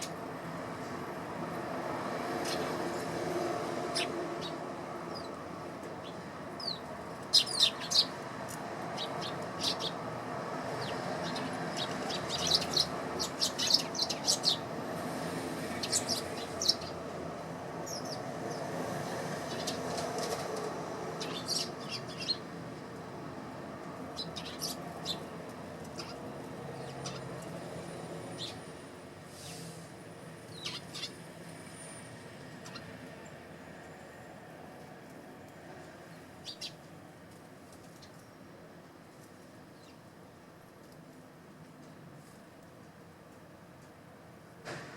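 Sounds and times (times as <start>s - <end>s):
sparrows chirping: 2.2s - 22.6s, 23.9s - 28.7s, 30.4s - 31.9s, 32.5s - 34.1s, 36.0s - 36.9s, 37.8s - 38.4s.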